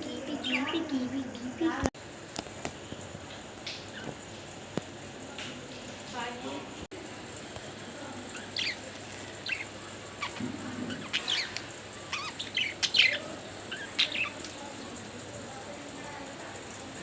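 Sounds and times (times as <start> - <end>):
budgerigars chirping: 7.1 - 17.0.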